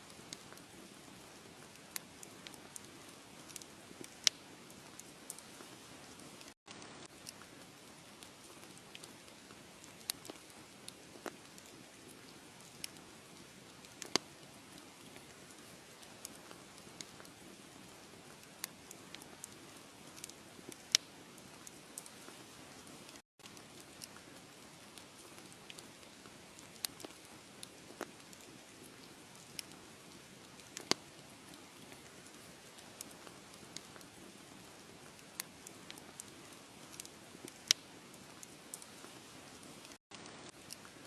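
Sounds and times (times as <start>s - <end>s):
wood fire crackling: 0.0s - 41.0s.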